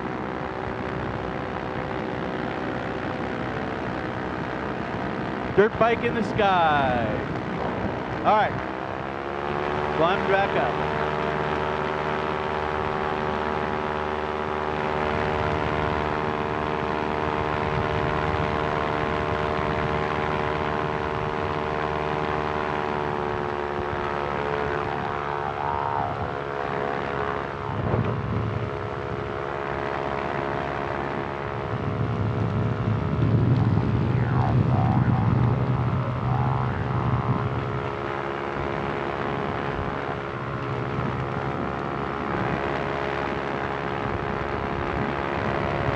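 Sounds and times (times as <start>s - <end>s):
ultralight engine and propeller: 0.0s - 45.9s
low rumble: 23.9s - 29.4s, 31.4s - 42.2s.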